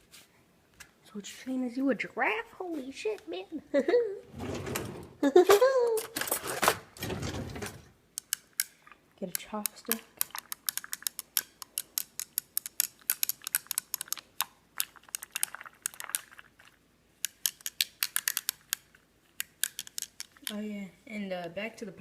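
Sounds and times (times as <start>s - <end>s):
chopsticks clicking against dish: 8.2s - 8.8s.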